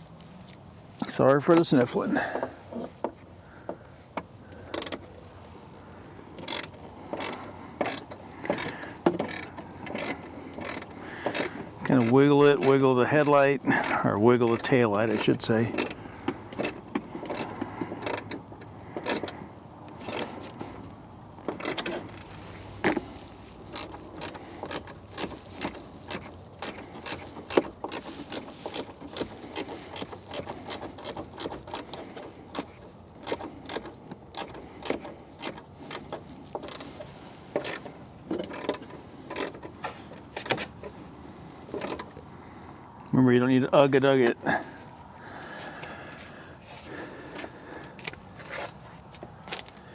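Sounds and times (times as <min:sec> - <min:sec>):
ratchet wrench clicking: 0:04.6 - 0:05.2, 0:06.4 - 0:19.4, 0:22.9 - 0:39.6.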